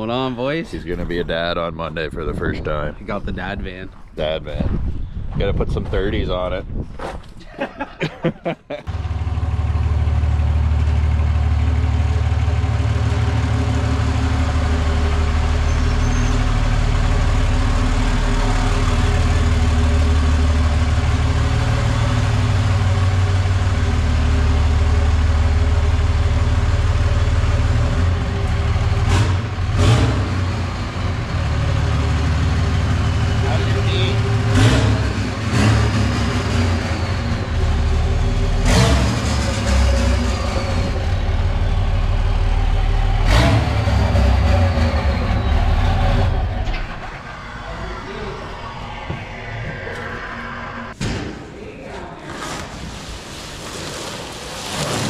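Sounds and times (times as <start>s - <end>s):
loud diesel engine idling: 8.9s - 50.4s.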